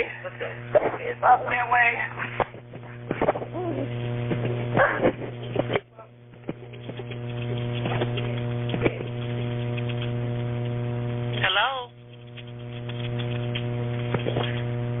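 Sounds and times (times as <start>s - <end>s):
electrical hum on telephone line: 0.0s - 15.0s.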